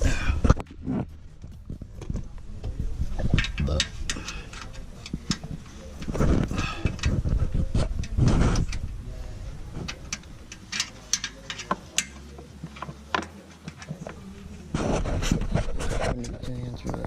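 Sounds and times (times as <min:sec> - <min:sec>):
clicks of hand tools: 0:09.9 - 0:14.2.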